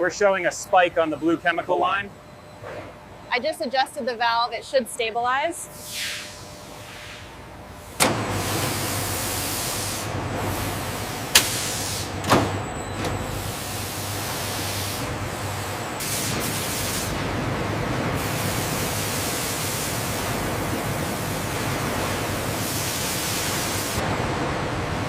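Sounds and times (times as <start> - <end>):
factory machinery rushing: 7.9 - 25.0.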